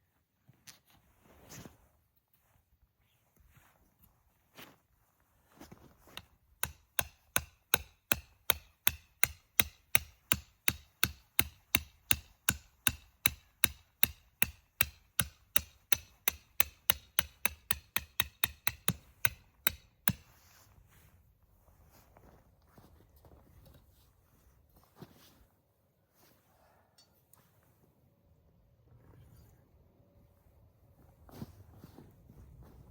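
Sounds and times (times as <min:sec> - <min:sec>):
tent peg being hammered: 0:06.2 - 0:20.3.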